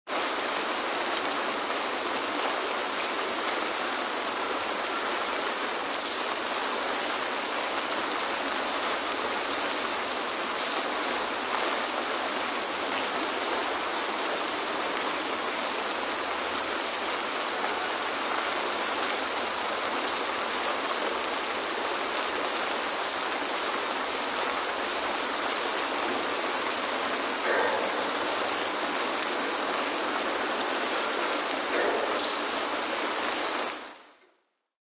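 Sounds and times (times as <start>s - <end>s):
rain splashing on hard surfaces: 0.1s - 34.4s.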